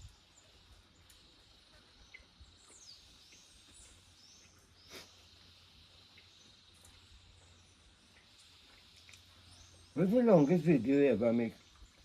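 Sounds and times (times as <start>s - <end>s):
high background hiss: 0.0s - 12.0s.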